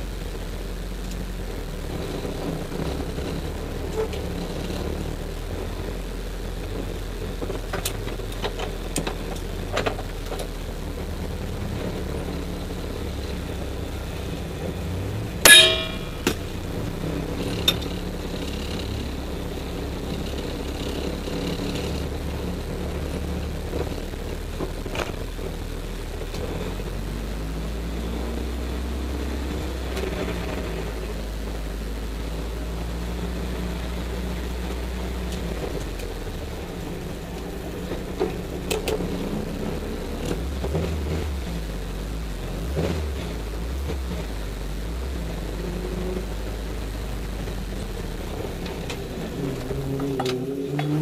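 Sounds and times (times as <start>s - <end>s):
car engine drone from inside: 0.0s - 51.0s
sharp metallic clang: 15.4s - 16.4s.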